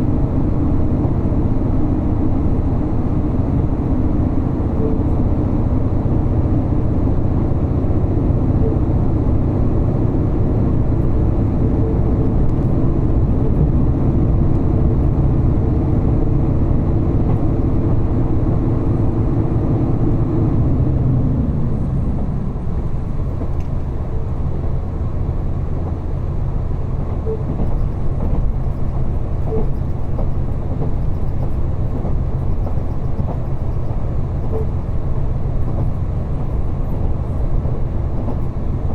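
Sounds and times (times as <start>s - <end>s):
railcar engine hum: 0.0s - 38.9s.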